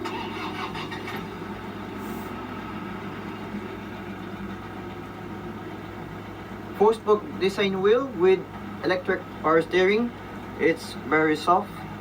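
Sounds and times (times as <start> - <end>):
diesel engine idling: 0.0 - 12.0
brief hiss: 2.0 - 2.4.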